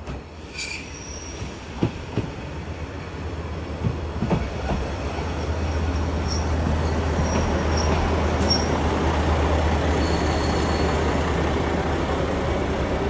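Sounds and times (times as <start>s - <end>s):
railcar engine and wheels rumbling: 0.0s - 13.0s
high wheel squeals: 5.8s - 8.8s, 9.9s - 11.1s.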